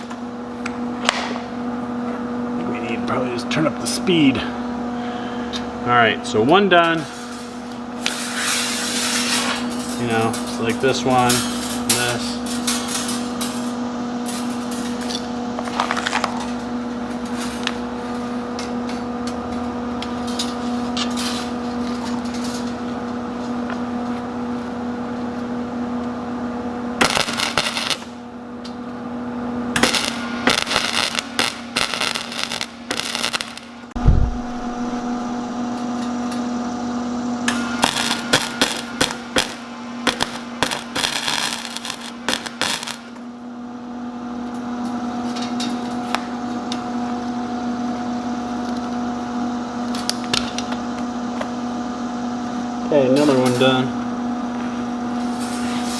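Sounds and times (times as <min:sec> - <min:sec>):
electrical hum: 0:00.0 - 0:55.9
welder arc crackling: 0:05.6 - 0:24.0, 0:27.0 - 0:28.2, 0:29.7 - 0:43.3, 0:44.4 - 0:55.9
low thump: 0:34.0 - 0:35.4.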